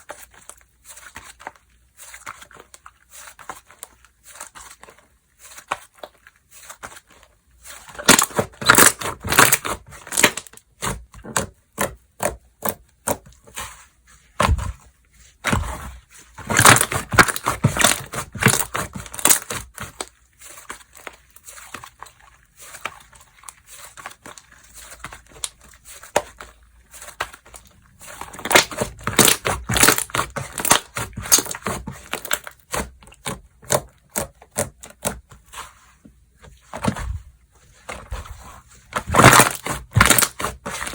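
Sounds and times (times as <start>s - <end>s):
slime squished by hand: 15.4s - 35.8s.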